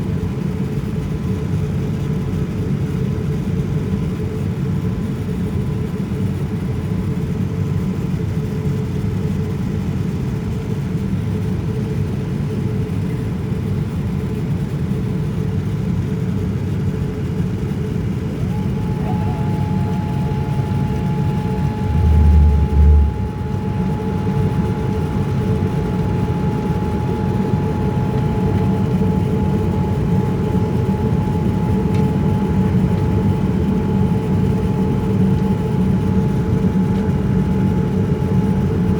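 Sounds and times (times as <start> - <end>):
constant hum tone: 18.3 - 38.9
second tone: 18.5 - 38.5
airliner cabin rumble: 18.5 - 38.9.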